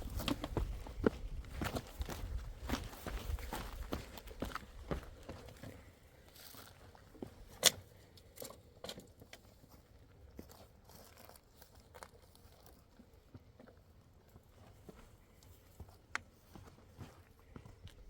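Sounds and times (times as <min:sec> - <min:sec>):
footsteps crunching on path: 0:00.0 - 0:07.5, 0:14.3 - 0:18.0.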